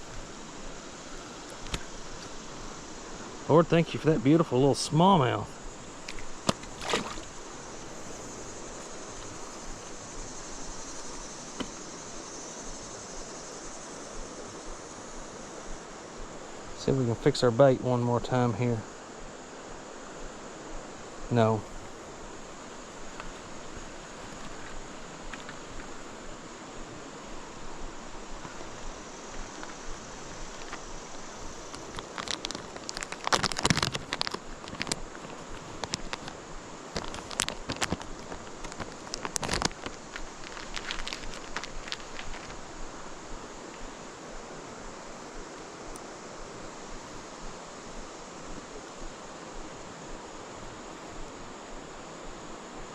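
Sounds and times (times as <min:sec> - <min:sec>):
background hiss: 0:00.0 - 0:52.9
creek water running: 0:00.0 - 0:52.9
insect chirring: 0:00.0 - 0:52.9
sharp clicks and crackles: 0:31.7 - 0:42.6.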